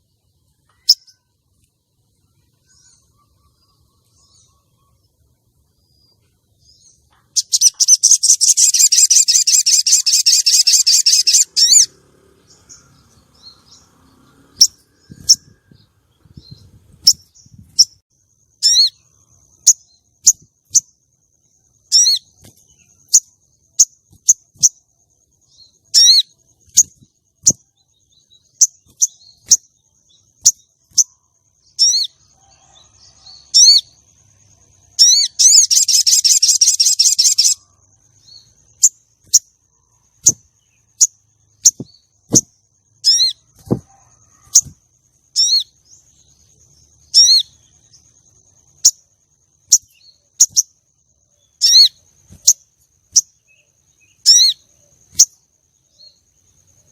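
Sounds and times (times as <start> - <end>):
sharp high bird chirps: 0.0 - 1.4, 2.2 - 56.9
bird chattering trill: 7.3 - 11.9, 18.6 - 20.9, 21.9 - 22.4, 25.8 - 27.6, 34.9 - 37.7, 40.2 - 45.8, 47.1 - 47.7, 49.6 - 50.7, 51.5 - 53.4, 54.0 - 55.3.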